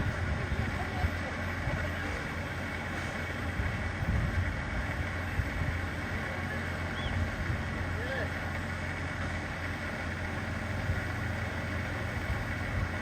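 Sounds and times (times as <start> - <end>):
moving train rumble: 0.0 - 13.0.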